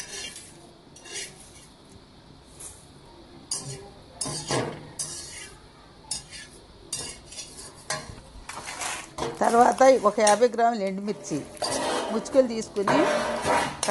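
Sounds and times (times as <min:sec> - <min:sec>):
metal spoon scraping metal pot: 0:00.0 - 0:01.7, 0:03.5 - 0:09.3, 0:11.2 - 0:13.9.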